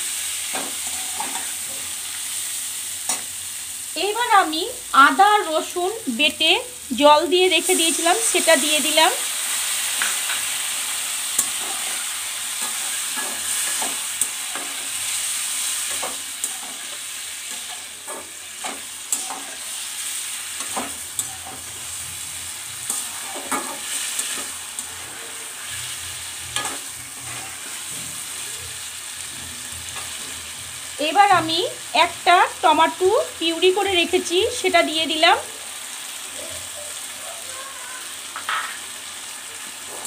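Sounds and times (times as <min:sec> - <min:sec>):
potatoes sizzling in hot oil: 0:00.0 - 0:40.0
metal spatula scraping a pan: 0:00.4 - 0:02.1, 0:09.5 - 0:28.5.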